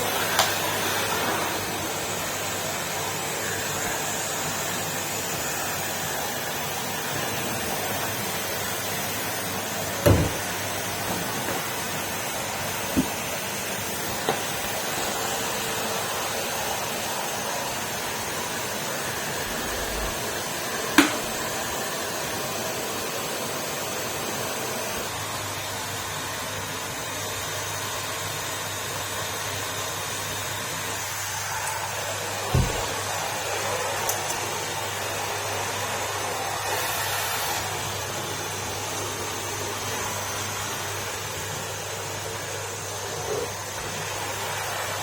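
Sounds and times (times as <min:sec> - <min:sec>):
vacuum cleaner running: 0:00.0 - 0:45.0.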